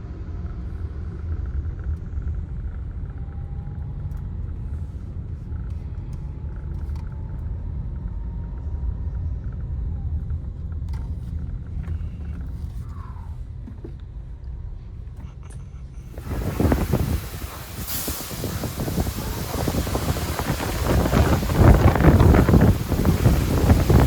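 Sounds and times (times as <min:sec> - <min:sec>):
car wash equipment rumble: 0:00.0 - 0:24.0.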